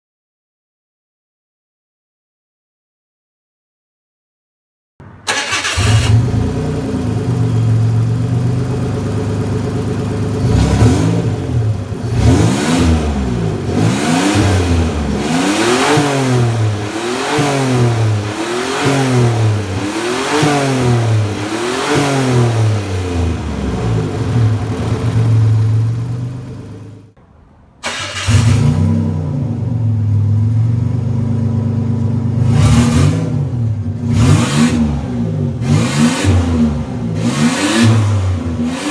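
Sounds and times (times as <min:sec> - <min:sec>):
car engine idling and revving: 0:05.0 - 0:27.2, 0:27.8 - 0:38.9.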